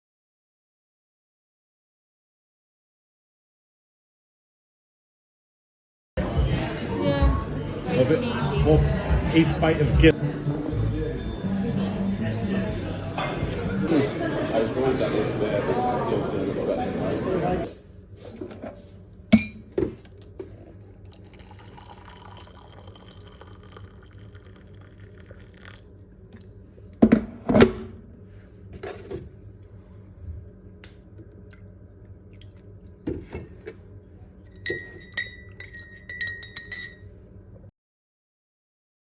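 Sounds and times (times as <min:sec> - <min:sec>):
ringing glass clinks: 0:19.4 - 0:19.6, 0:34.5 - 0:37.0
glassware and tableware clinking: 0:19.4 - 0:19.8, 0:21.2 - 0:24.8, 0:34.5 - 0:37.1.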